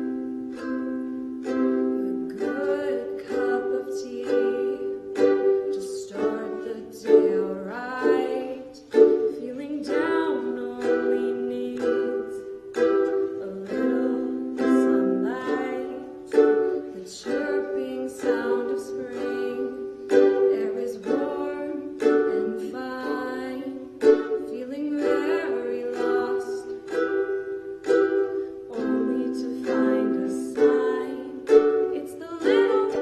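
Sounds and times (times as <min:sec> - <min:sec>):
ukulele strummed chords: 0:00.0 - 0:33.0.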